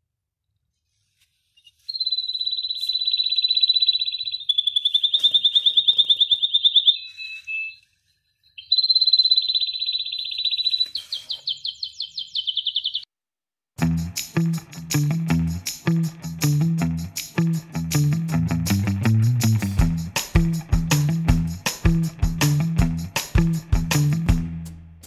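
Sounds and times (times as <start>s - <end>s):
songbird singing high trills: 1.9s - 7.8s, 8.6s - 13.0s.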